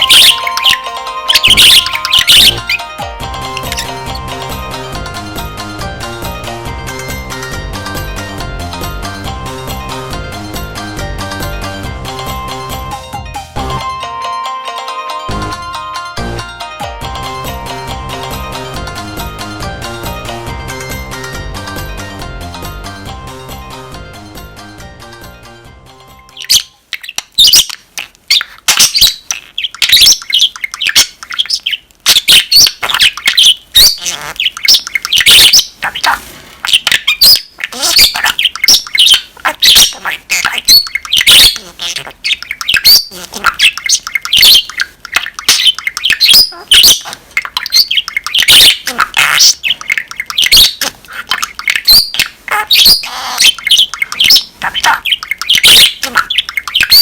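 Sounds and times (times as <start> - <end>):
budgerigar warbling: 0.0 - 2.9, 3.5 - 4.3, 26.3 - 57.0.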